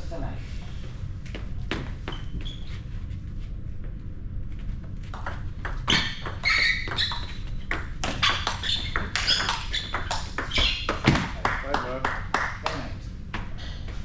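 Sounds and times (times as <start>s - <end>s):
shoes squeaking on court floor: 1.3s - 3.0s, 5.0s - 11.4s
ball striking rackets and walls: 5.0s - 12.6s.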